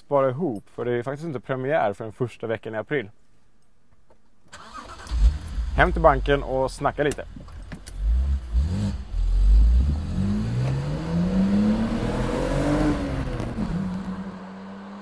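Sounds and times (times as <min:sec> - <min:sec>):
car engine accelerating: 0:07.1 - 0:15.0.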